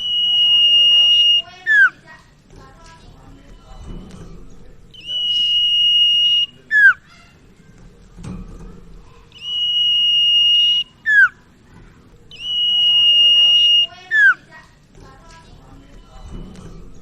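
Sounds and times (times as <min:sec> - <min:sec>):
bird whistling call: 0:00.0 - 0:02.0, 0:05.0 - 0:07.1, 0:09.4 - 0:11.4, 0:12.3 - 0:14.5.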